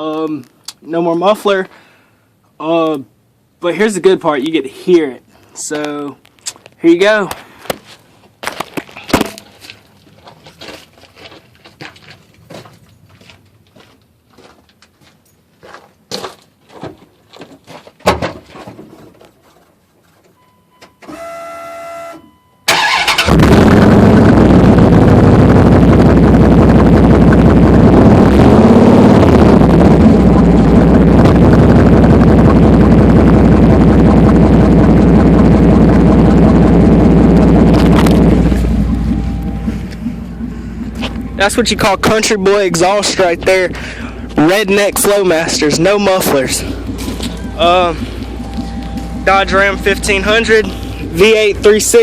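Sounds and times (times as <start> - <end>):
short buzzing tone: 20.4 - 22.6
loud truck engine idling: 22.7 - 52.0.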